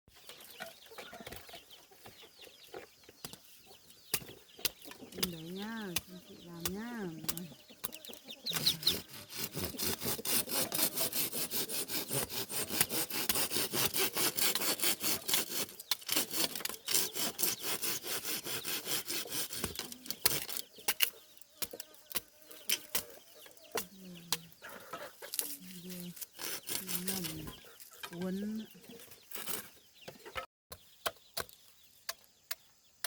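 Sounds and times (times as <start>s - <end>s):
hand saw cutting wood: 8.5s - 23.2s, 25.3s - 27.5s.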